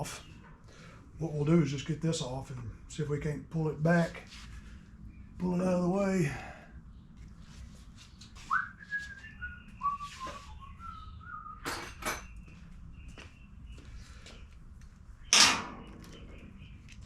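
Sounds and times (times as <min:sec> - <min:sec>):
man whistling a tune: 0:08.4 - 0:11.7.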